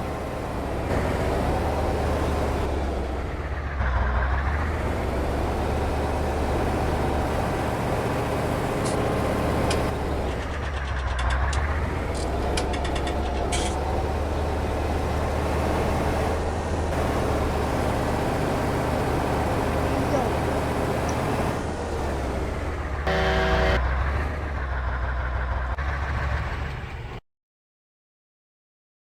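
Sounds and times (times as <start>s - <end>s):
heavy truck engine running: 0.0s - 27.2s
short sharp ticks and rattles: 9.6s - 13.8s.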